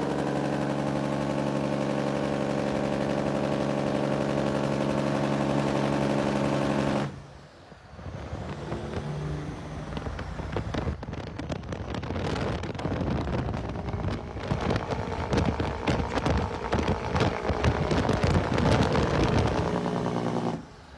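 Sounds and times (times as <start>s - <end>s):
truck rumble: 0.0s - 20.9s
wind noise: 7.3s - 20.1s.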